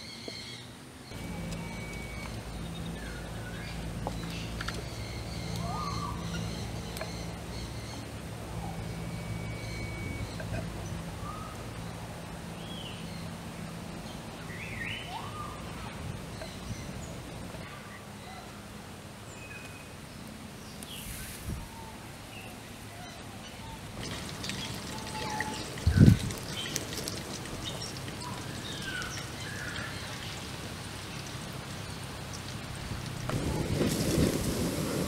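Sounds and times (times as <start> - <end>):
bird calls: 0.0 - 12.0, 20.6 - 30.4
wood fire crackling: 23.8 - 35.0.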